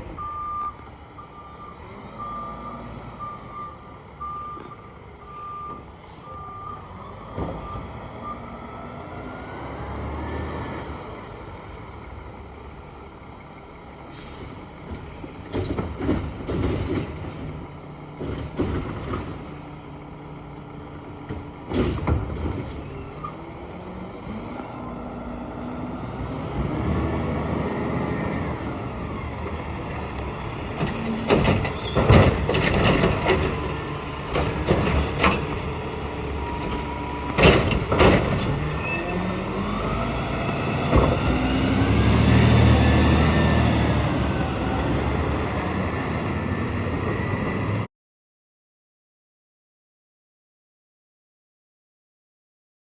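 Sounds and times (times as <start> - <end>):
high brake squeal: 12.7 - 14.6, 29.6 - 32.6, 36.3 - 39.8
air brake hiss: 14.0 - 14.6.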